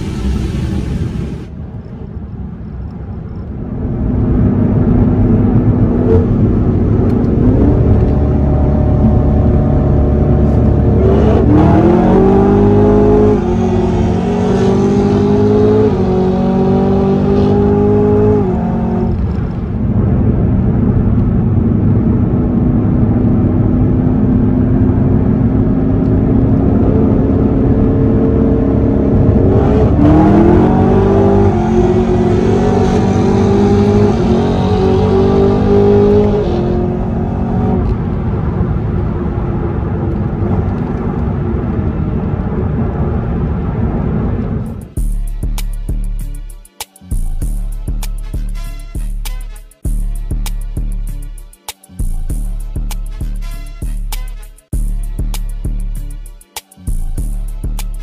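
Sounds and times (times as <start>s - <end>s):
car engine accelerating: 3.3s - 45.0s.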